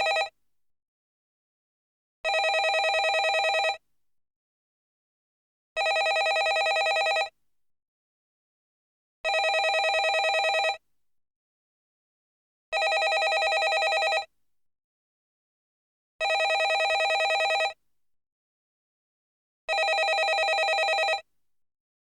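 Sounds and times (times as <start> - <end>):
telephone ringing: 0.0 - 0.3, 2.3 - 3.8, 5.8 - 7.3, 9.3 - 10.8, 12.8 - 14.3, 16.2 - 17.8, 19.7 - 21.2.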